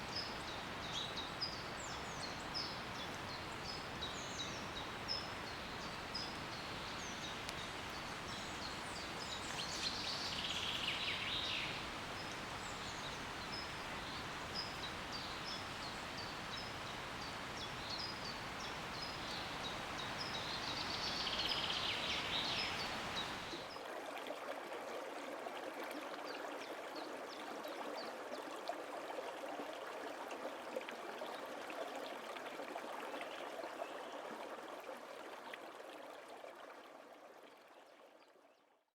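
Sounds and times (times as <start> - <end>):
small birds chirping: 0.0 - 23.6
water trickling: 0.0 - 23.8
stream flowing: 0.0 - 38.1.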